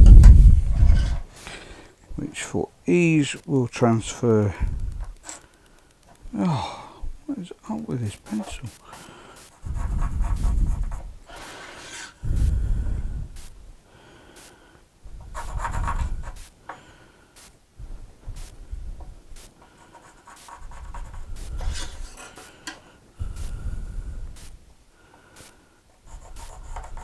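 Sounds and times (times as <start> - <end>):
pencil scratching on wood: 8.0 - 12.5, 15.2 - 16.5, 19.4 - 22.5, 25.4 - 27.0.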